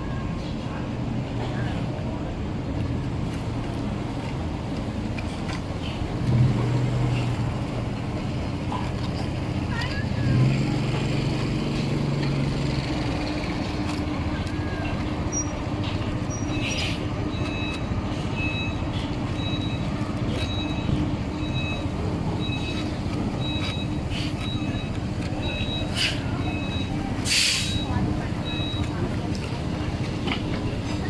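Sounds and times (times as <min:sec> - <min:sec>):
two-tone electronic beep: 0:16.4 - 0:27.0, 0:27.7 - 0:28.9.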